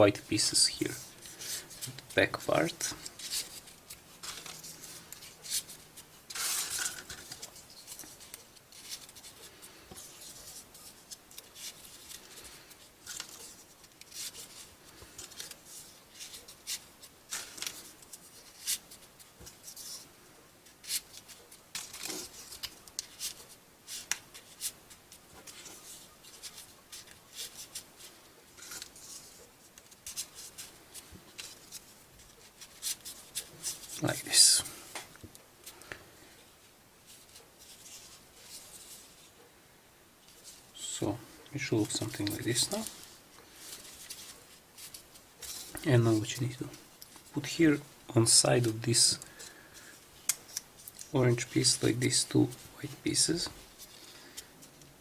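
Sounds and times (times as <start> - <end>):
paper scrapes rustles and clicks: 0.4 - 20.0.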